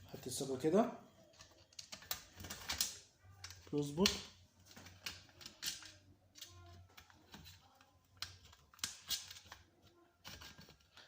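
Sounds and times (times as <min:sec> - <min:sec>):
small metal parts clicking: 0:01.3 - 0:07.4.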